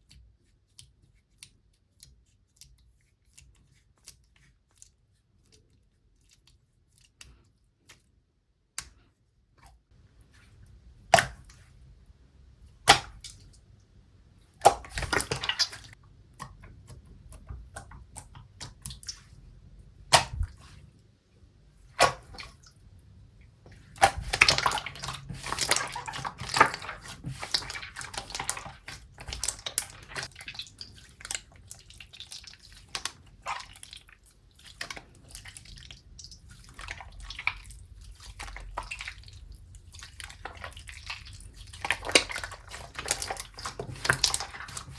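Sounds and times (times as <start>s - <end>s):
slime squelching and popping: 10.9s - 11.7s, 12.7s - 13.8s, 14.5s - 19.4s, 20.0s - 20.8s, 21.9s - 22.9s, 23.7s - 44.9s.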